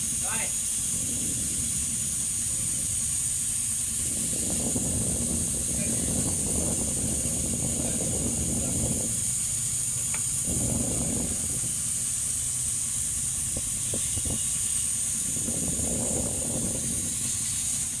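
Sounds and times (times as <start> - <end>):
steady hiss: 0.0 - 18.0
low rumble: 3.8 - 14.0.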